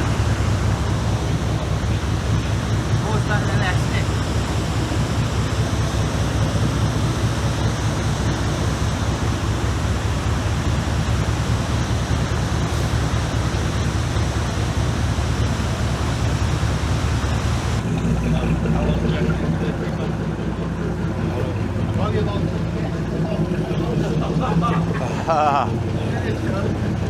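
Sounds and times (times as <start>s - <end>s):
wind and water rushing: 0.0s - 10.0s
boat engine drone: 0.0s - 27.0s.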